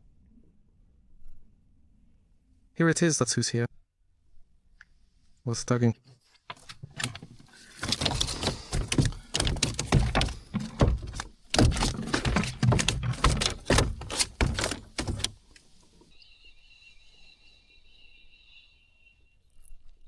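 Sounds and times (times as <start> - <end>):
knocking and rubbing on microphone: 6.1 - 15.4
faint high-pitched tone: 16.1 - 19.9.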